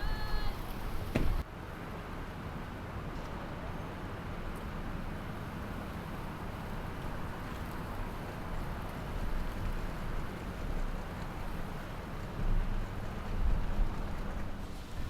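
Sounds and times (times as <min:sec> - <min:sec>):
boat engine rumbling: 0:00.0 - 0:01.4, 0:04.8 - 0:15.0.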